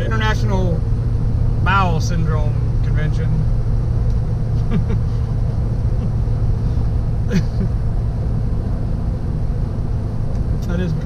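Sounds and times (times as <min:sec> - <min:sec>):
car cabin road and engine rumble: 0:00.0 - 0:11.0
low steady hum: 0:00.0 - 0:11.0.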